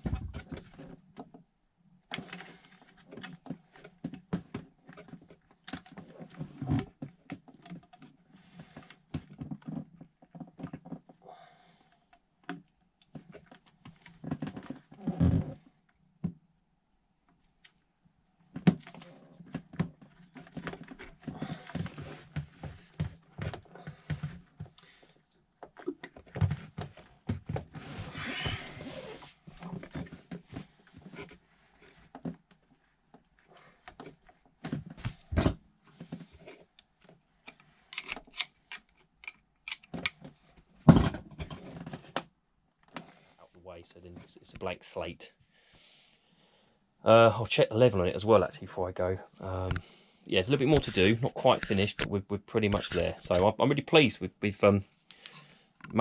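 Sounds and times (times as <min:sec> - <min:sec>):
tools clicking and scraping: 0:37.4 - 0:40.2.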